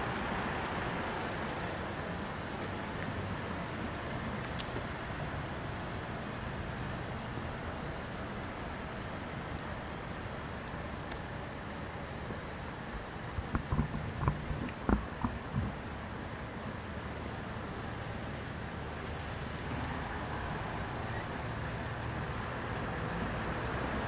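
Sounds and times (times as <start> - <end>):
road traffic passing cars: 0.0 - 24.0
faint ticks: 0.6 - 17.1.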